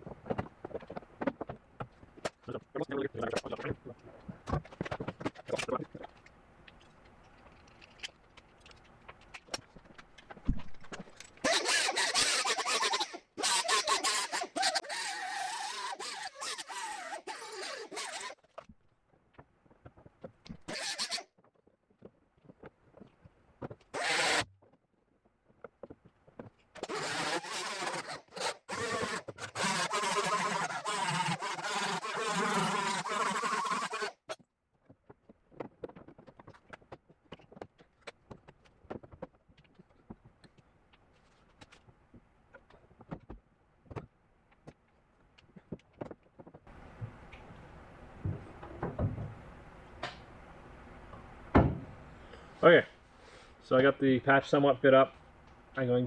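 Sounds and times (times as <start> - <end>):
power tool cutting sheet metal: 11.4 - 18.4, 20.7 - 21.3, 24.0 - 24.5, 26.8 - 34.3.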